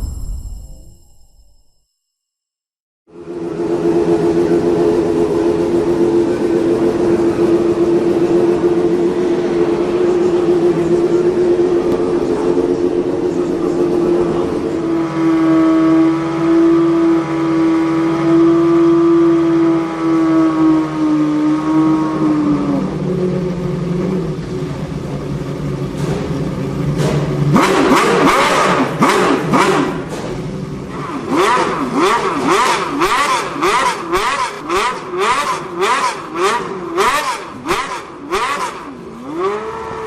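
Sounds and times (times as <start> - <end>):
engine revving: 3.1 - 24.5, 26.0 - 40.0
race engine running: 3.1 - 40.0
exhaust pops: 25.7 - 30.9.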